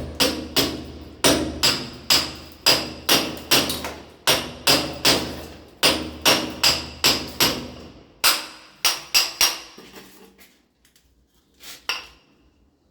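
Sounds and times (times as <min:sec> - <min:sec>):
hammer striking metal: 0:00.0 - 0:09.7.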